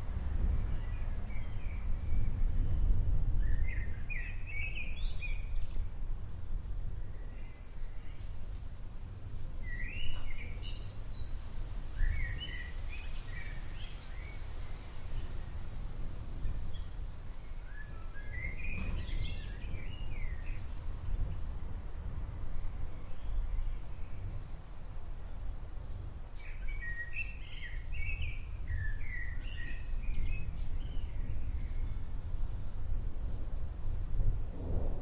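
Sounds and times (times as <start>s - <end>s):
low outdoor rumble: 0.0s - 35.0s
steady hiss: 7.5s - 35.0s
small birds chirping: 9.3s - 21.6s, 26.4s - 33.6s.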